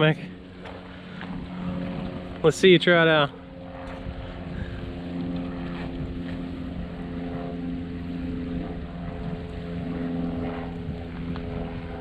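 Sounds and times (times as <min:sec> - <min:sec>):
engine droning: 0:00.0 - 0:12.0
wind on microphone: 0:03.6 - 0:12.0.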